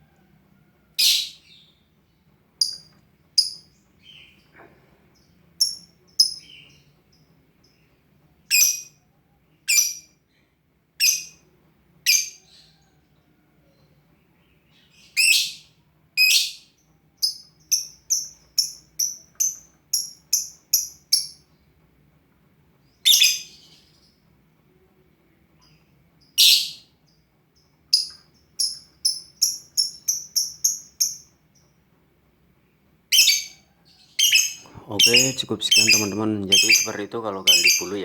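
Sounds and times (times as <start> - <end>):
bird high chirps: 1.0 - 1.8, 5.2 - 9.0, 9.6 - 10.1, 14.7 - 21.4, 23.0 - 24.2, 25.6 - 31.7, 33.1 - 38.0
bird harsh screeches: 34.2 - 38.0.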